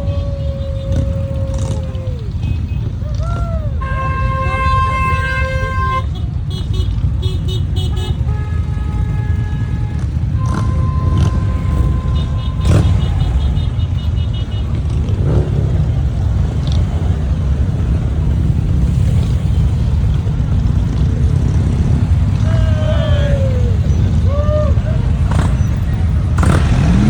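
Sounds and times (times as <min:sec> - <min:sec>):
motorcycle engines rumbling: 0:00.0 - 0:27.0
horn sounding: 0:03.7 - 0:15.8.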